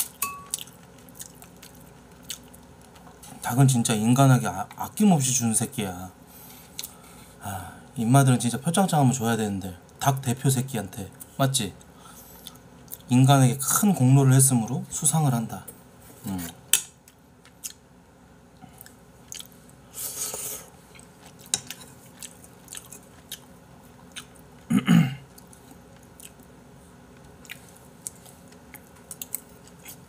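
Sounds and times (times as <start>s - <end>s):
person chewing food: 0.4s - 3.3s, 17.1s - 17.8s, 18.6s - 30.0s
breathy hiss: 19.8s - 20.8s.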